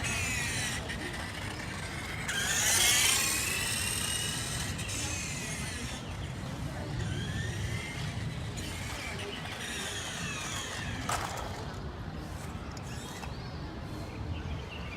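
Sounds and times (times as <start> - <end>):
small electric motor whining: 0.0 - 11.8.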